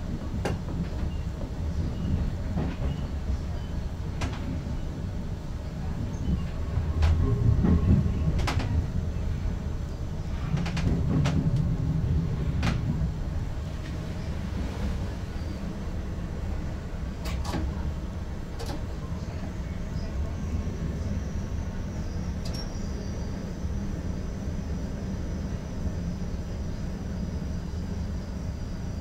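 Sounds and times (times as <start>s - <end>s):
train cab rumble: 0.0s - 29.0s.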